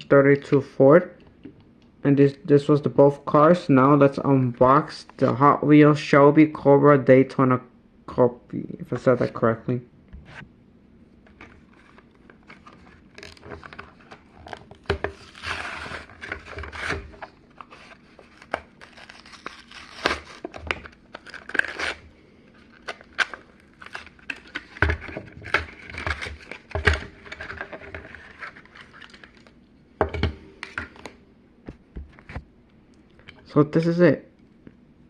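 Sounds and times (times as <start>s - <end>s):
plastic blister crinkling: 11.3s - 29.6s
cardboard tearing: 13.2s - 22.0s.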